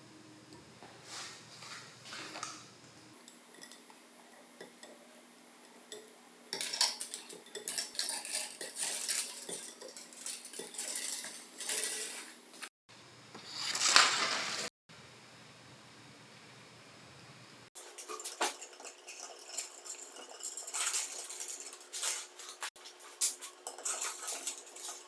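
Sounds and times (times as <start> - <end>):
small metal parts clinking: 5.7 - 12.7, 17.8 - 25.0.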